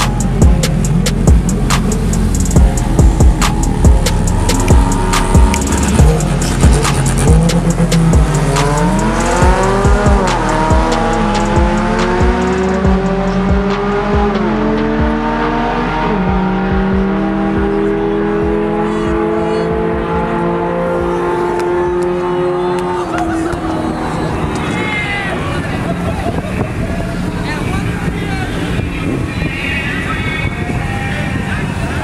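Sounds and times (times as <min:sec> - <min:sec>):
music with drum beat: 0:00.0 - 0:20.3
race car engine accelerating: 0:00.0 - 0:30.6.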